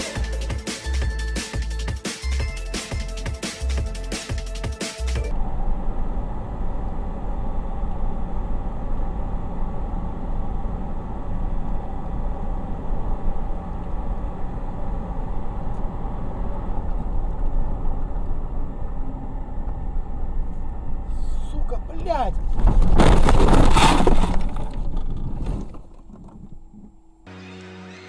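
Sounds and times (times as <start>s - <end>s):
car road and engine noise: 5.2s - 23.3s.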